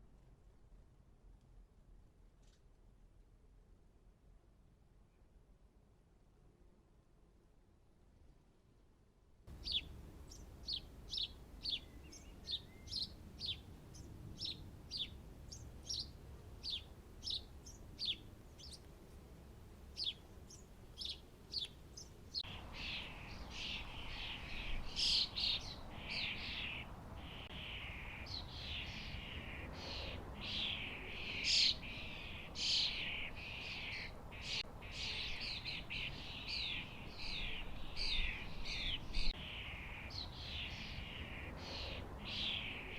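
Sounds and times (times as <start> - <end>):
small birds chirping: 9.5 - 19.0, 19.9 - 42.9
overlapping birdsong: 9.5 - 19.2, 19.8 - 42.9.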